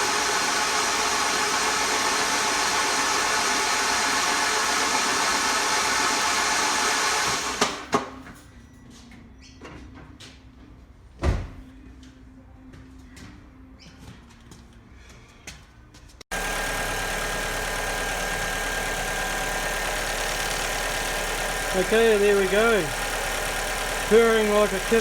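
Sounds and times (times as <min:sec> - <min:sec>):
car engine running: 0:16.3 - 0:25.0.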